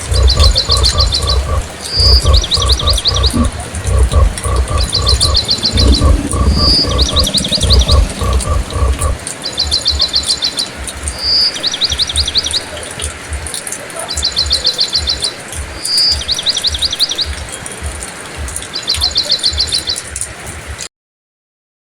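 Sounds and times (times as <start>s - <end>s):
low thumps: 0.0s - 9.2s
songbird trilling: 0.0s - 12.6s
steady rain hiss: 0.0s - 20.9s.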